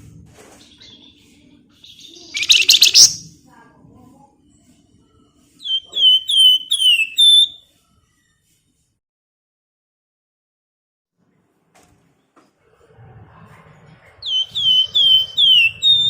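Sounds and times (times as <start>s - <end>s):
bird whistled notes: 1.9s - 3.3s, 5.6s - 7.6s, 14.2s - 16.0s
bird rattling chatter: 2.4s - 3.2s.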